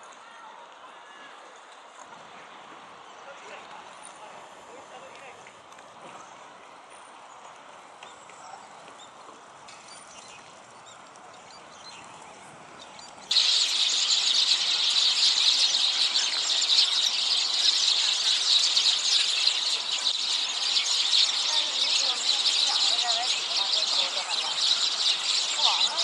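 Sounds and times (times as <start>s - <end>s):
flock of birds calling: 8.0s - 26.0s.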